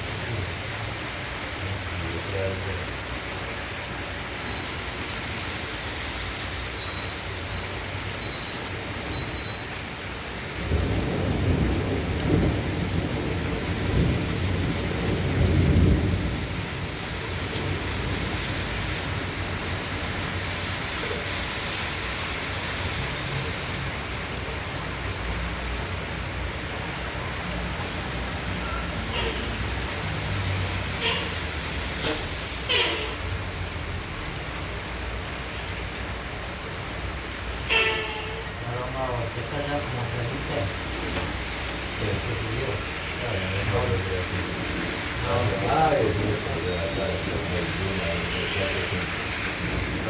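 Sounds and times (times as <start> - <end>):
heavy rain hiss: 0.0 - 50.0
thunder rumbling: 10.5 - 21.2.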